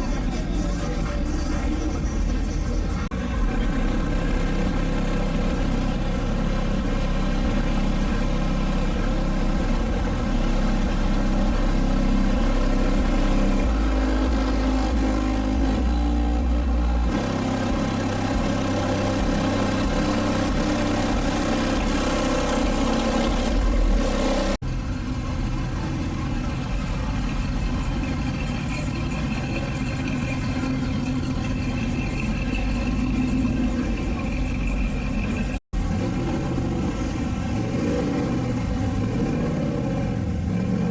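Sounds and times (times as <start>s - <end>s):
car engines revving: 0.0s - 40.9s.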